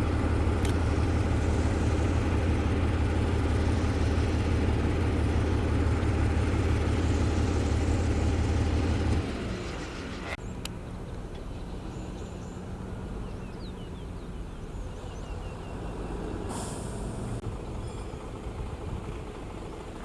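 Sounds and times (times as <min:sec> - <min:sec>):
diesel engine drone: 0:00.0 - 0:20.0
short sharp hiss: 0:16.5 - 0:17.4.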